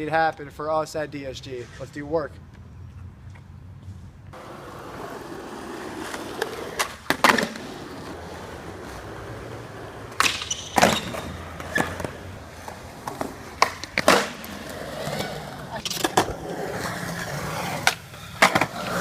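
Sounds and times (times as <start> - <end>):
skateboard wheels rolling: 3.9 - 19.0
skateboard clacks and smacks: 4.4 - 19.0.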